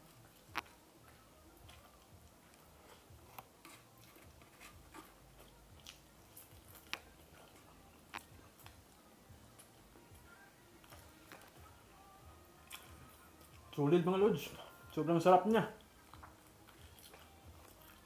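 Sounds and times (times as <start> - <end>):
chewing and lip smacking: 0.0 - 8.8, 12.6 - 13.8, 15.8 - 18.0.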